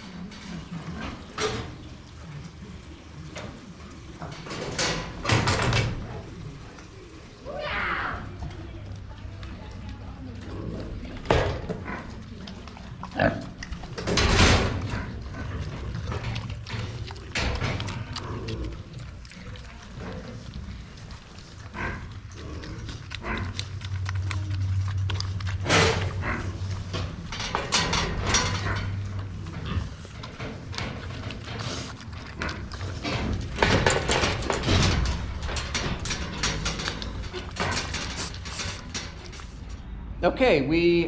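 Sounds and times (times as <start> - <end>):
knocks and clatter in pen: 0.1 - 1.9, 3.3 - 6.5, 11.1 - 39.6
pigs grunting: 9.6 - 39.7.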